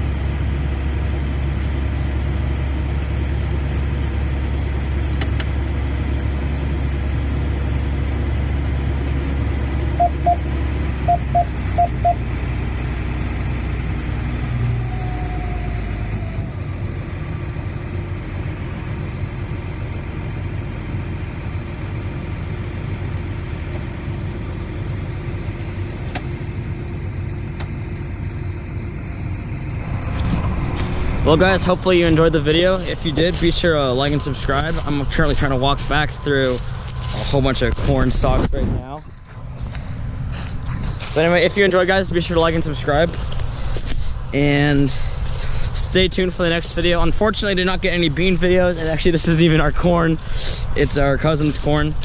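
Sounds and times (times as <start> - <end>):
combine harvester engine: 0.0 - 52.0
short electronic beeps: 10.0 - 10.5, 11.1 - 12.2.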